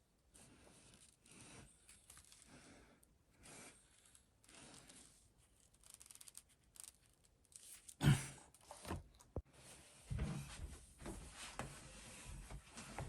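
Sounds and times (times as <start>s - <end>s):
rustling and scraping: 8.6s - 13.0s.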